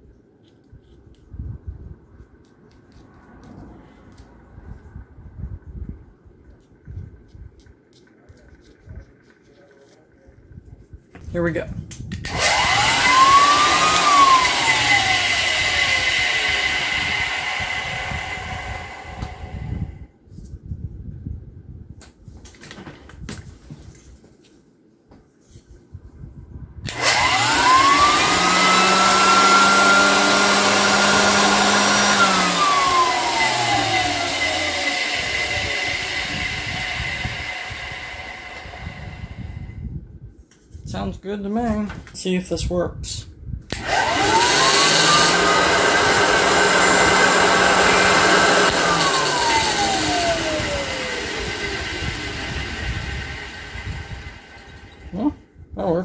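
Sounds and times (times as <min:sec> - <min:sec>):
vacuum cleaner motor whine: 0:12.2 - 0:20.1, 0:26.9 - 0:39.8, 0:43.7 - 0:55.3
low hum: 0:26.9 - 0:40.1.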